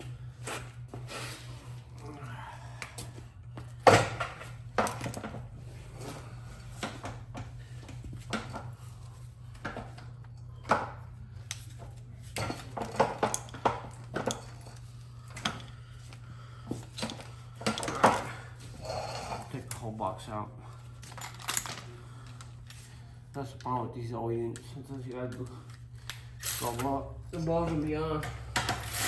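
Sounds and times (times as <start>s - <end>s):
metal parts clinking: 21.0s - 21.9s.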